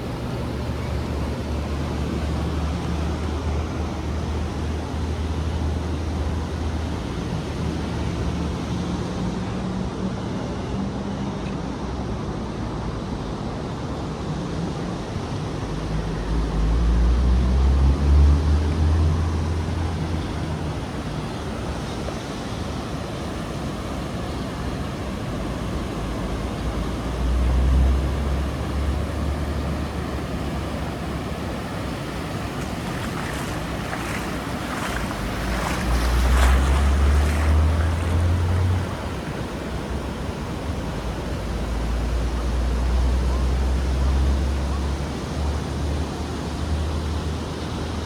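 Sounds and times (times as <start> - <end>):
ocean surf washing onto beach: 0.0 - 9.0, 17.4 - 44.7.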